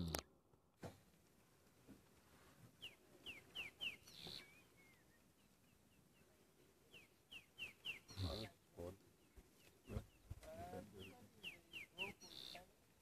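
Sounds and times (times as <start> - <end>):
faint bird chirps: 2.8 - 12.7.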